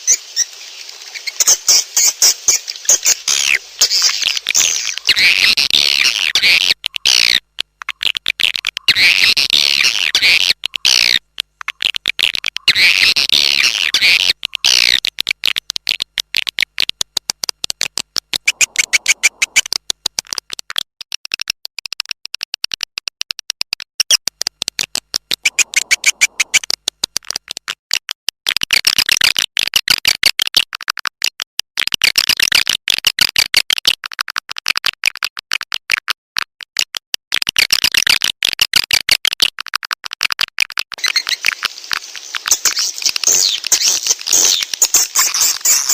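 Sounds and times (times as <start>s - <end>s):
swiftlet twittering and clicks: 0.0s - 27.7s, 40.6s - 45.9s.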